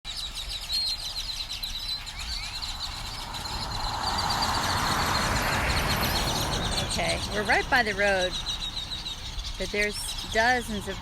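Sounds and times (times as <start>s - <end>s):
birds chirping in trees: 0.0s - 11.0s
passing vehicle hiss: 2.1s - 9.4s.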